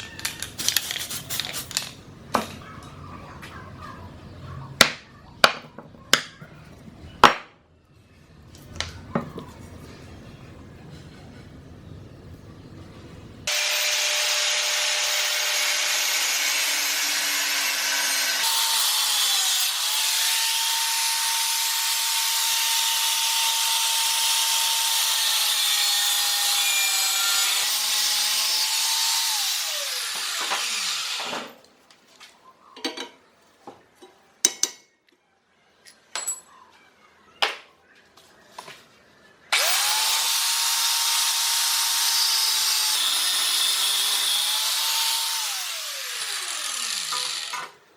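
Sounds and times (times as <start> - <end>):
electric grinder grinding steel: 13.5 - 31.5, 39.5 - 47.8.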